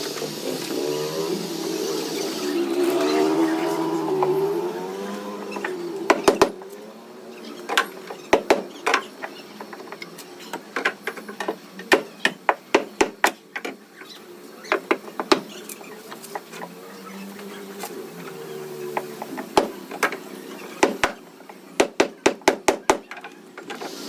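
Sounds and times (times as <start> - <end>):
hammer tapping on sheet metal: 21.8 - 23.0.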